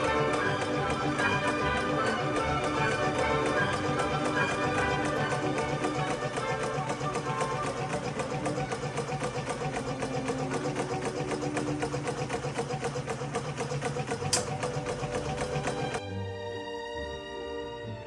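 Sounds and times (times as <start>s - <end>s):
background music: 0.0s - 12.9s, 14.3s - 18.0s
sewing machine clattering: 0.0s - 16.0s
sharp click: 14.2s - 14.6s.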